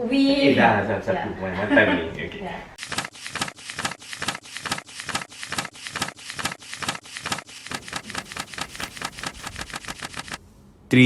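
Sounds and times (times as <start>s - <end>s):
rapid sharp clicks: 2.8s - 10.4s.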